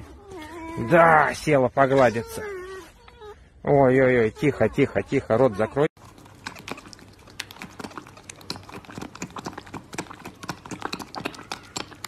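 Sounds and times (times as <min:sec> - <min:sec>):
kitten suckling on a bottle: 0:06.1 - 0:12.0.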